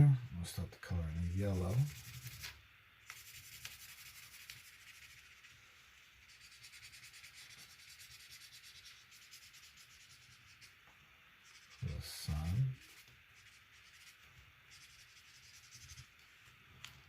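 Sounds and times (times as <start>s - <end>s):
marker scratching on paper: 1.4s - 5.5s, 6.2s - 10.7s, 11.4s - 16.2s.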